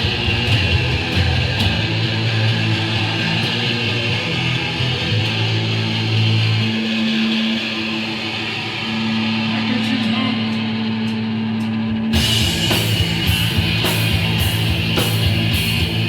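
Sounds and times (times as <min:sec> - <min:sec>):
distorted guitar and bass drone: 0:00.0 - 0:16.0
punk band playing with drums: 0:00.0 - 0:16.0.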